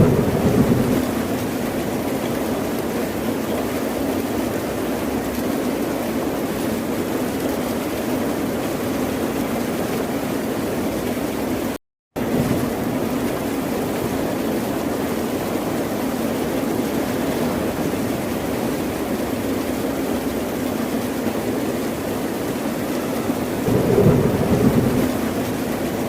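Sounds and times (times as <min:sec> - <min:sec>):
ocean surf: 0:00.0 - 0:02.4, 0:23.2 - 0:26.0.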